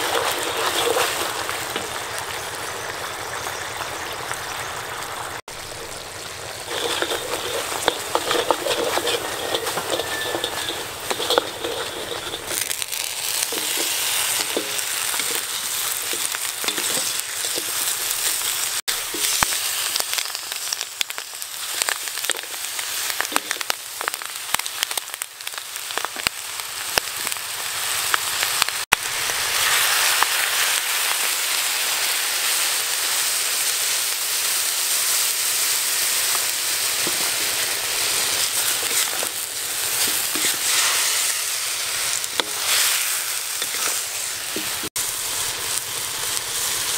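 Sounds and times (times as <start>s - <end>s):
wooden spatula stirring: 0.0s - 1.9s, 6.6s - 19.6s, 38.3s - 41.3s
frying in hot oil sizzling: 0.0s - 46.9s.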